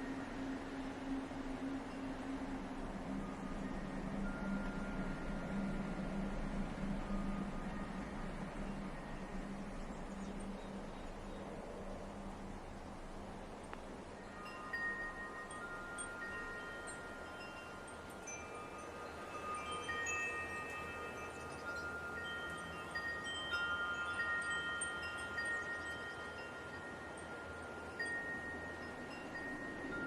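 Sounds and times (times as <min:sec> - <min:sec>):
wind chimes ringing: 0:00.0 - 0:12.6, 0:13.9 - 0:30.0
soft steady hiss: 0:00.0 - 0:30.0.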